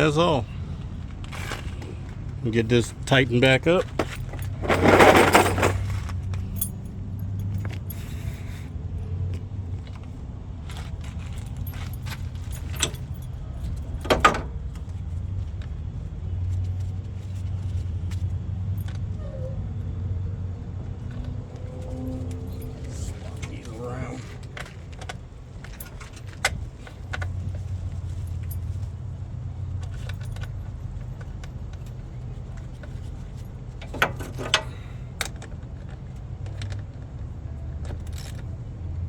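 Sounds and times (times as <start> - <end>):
low engine hum: 0.0 - 39.0
wrench scraping on metal: 4.0 - 6.0.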